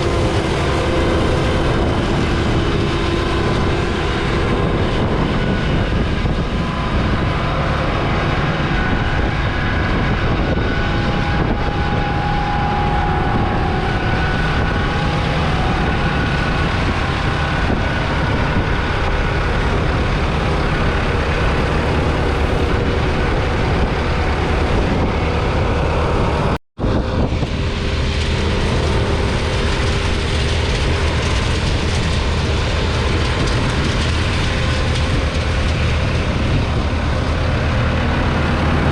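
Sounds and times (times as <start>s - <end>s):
faint whine: 0.0s - 26.4s
tractor diesel engine running: 0.0s - 38.9s.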